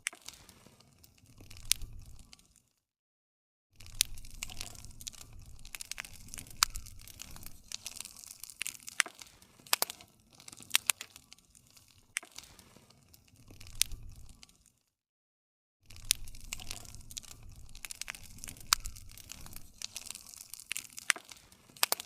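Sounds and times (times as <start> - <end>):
hiss and rumble of burning: 0.0 - 2.6, 3.8 - 14.6, 15.9 - 22.0
campfire crackling and popping: 0.0 - 2.7, 3.8 - 14.8, 15.9 - 22.0.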